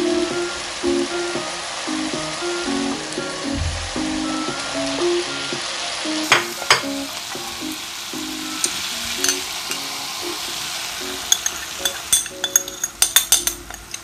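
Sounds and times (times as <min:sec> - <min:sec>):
soft background music: 0:00.0 - 0:13.7
sizzling and stirring in a wok: 0:00.0 - 0:14.0
sharp knocks: 0:03.5 - 0:04.2.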